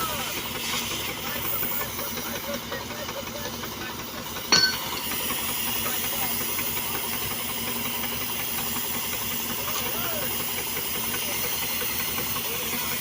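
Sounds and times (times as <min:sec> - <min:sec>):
loud hissing rush of welding: 0:00.0 - 0:13.0
sharp metal clank: 0:04.5 - 0:05.2.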